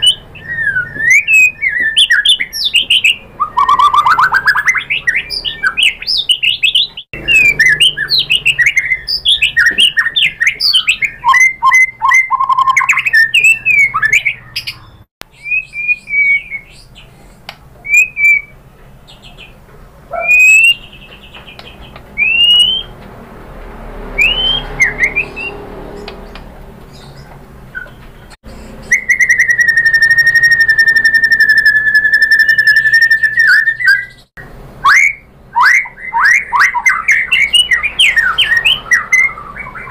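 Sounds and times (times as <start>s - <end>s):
long steady bird whistle: 0.0s - 14.3s, 15.3s - 16.9s, 20.1s - 20.8s, 22.2s - 23.0s, 24.2s - 25.6s, 28.7s - 34.2s, 34.8s - 39.9s
bird singing whistles and trills: 0.0s - 17.1s, 17.8s - 19.5s, 20.1s - 23.0s, 24.1s - 39.9s.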